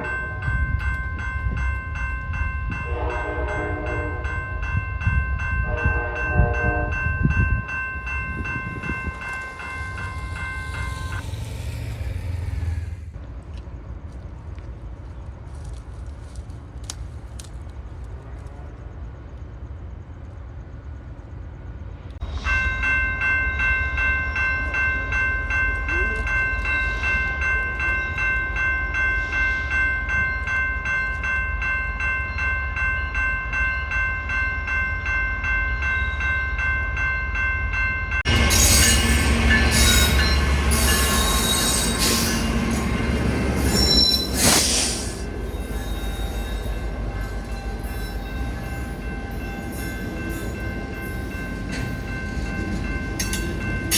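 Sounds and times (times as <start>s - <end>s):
crossing warning bell ringing: 0.0s - 13.2s, 22.2s - 44.4s, 45.2s - 53.9s
train rumble and clatter: 0.0s - 53.9s
train horn blasts: 2.8s - 4.4s, 5.6s - 7.3s.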